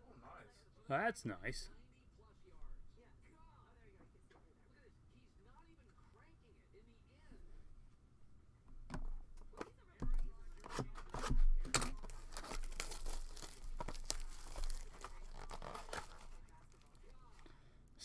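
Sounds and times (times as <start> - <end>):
packaging torn and crinkled: 10.6 - 17.4.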